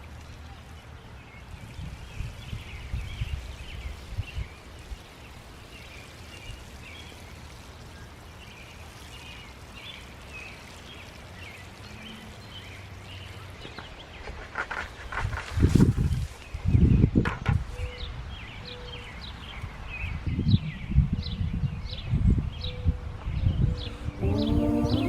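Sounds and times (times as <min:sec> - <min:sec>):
birds chirping: 0:23.4 - 0:25.0.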